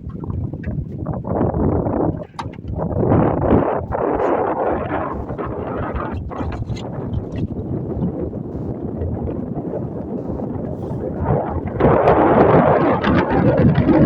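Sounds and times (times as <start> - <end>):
motorboat rumbling: 0.0 - 14.0
wind buffeting microphone: 0.0 - 14.0.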